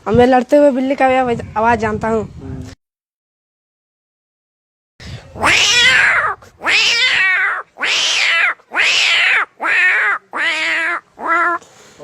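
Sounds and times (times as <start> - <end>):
person imitating cat yowls: 5.4 - 11.6.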